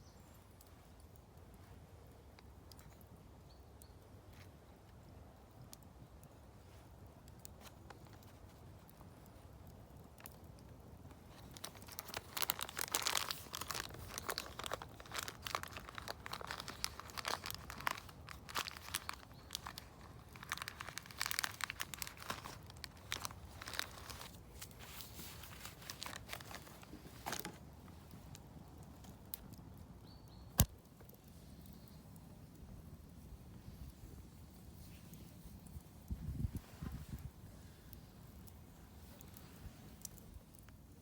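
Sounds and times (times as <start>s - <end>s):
crinkly material being torn and crumpled: 11.1s - 29.6s.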